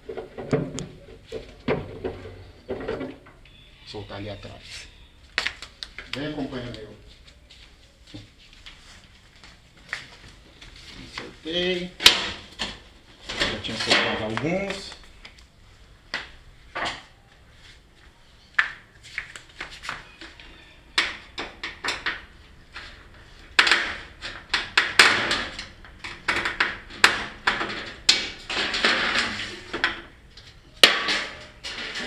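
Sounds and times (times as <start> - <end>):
parts clicking and knocking: 21.0 - 32.0
rattling and scraping: 21.6 - 30.2, 30.8 - 32.0.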